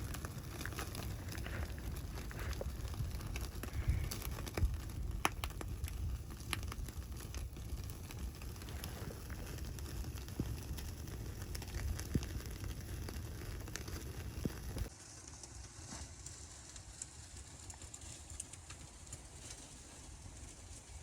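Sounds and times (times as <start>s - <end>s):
low rumble: 0.0s - 14.9s
wood fire crackling: 0.0s - 21.0s.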